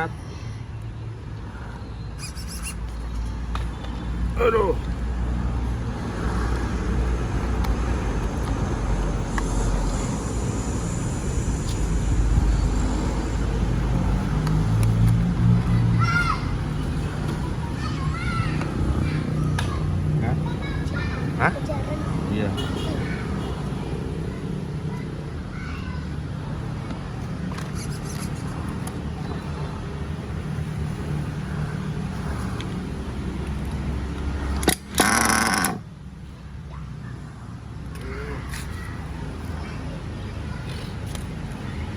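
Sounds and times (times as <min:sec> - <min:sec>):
model buggy nitro engine running: 0:35.0 - 0:35.8.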